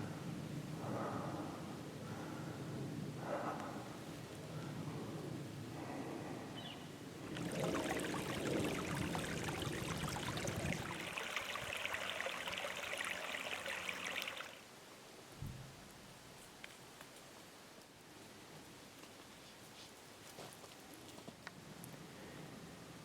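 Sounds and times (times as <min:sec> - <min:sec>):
running water: 0:07.2 - 0:14.7.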